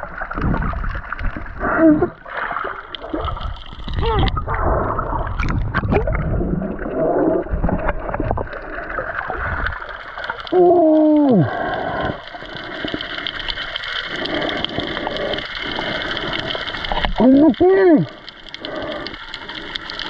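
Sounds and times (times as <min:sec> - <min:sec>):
bubbles gurgling: 0:00.0 - 0:20.0
underwater clicks crackling: 0:02.7 - 0:06.3, 0:07.4 - 0:08.7, 0:09.5 - 0:20.0.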